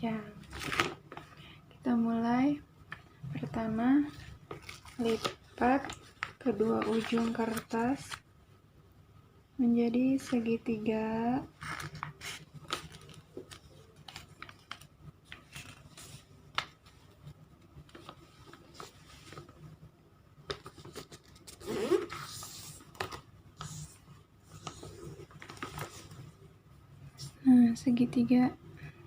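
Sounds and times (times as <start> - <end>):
paper rustling: 0.4 - 1.4, 4.0 - 8.2, 11.6 - 19.6, 20.4 - 26.4.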